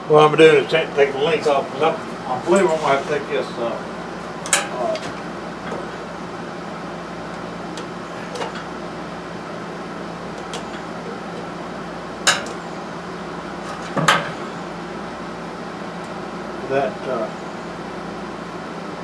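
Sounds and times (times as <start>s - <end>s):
steady background hum: 0.0s - 19.0s
hand tools clinking on metal: 1.4s - 3.3s, 4.3s - 6.2s, 7.3s - 8.8s, 10.4s - 11.6s, 12.2s - 12.8s, 13.6s - 14.5s.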